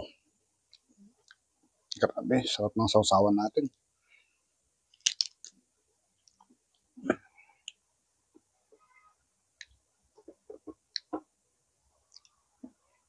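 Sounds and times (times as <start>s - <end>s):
wet mouth clicks and smacks: 5.0s - 5.6s.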